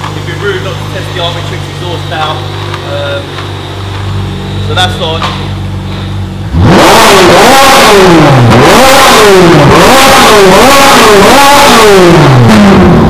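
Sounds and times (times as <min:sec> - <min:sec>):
sports car engine revving: 0:00.0 - 0:13.0.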